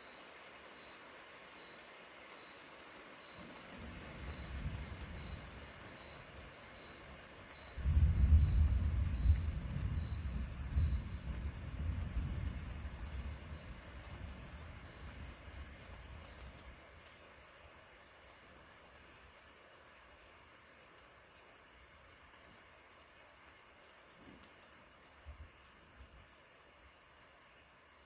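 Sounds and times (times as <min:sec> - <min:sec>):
distant rolling thunder: 0:03.5 - 0:06.8, 0:07.5 - 0:16.4.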